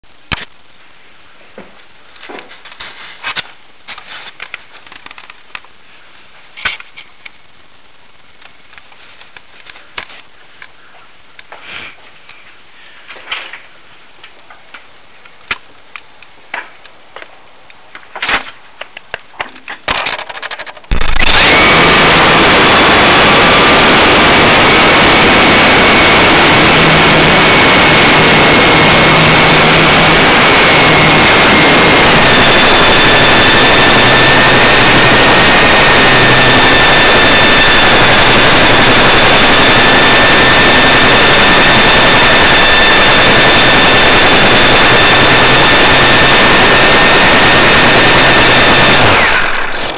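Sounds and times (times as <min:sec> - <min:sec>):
thin whine: 0:20.3 - 0:49.9
fan rushing air: 0:20.9 - 0:49.9.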